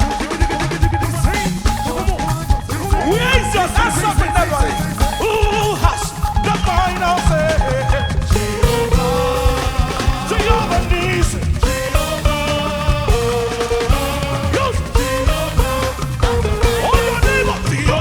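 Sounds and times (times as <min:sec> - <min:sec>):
lead voice singing: 0:00.0 - 0:18.0
live gospel band playing: 0:00.0 - 0:18.0.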